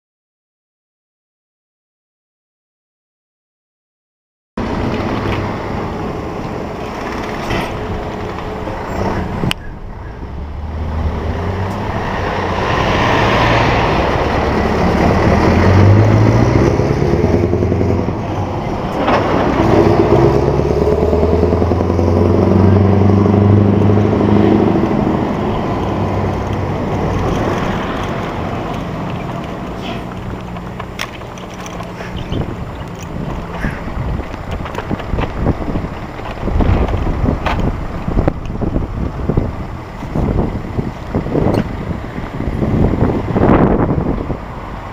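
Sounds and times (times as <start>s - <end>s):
diesel truck engine accelerating: 4.6s - 44.9s.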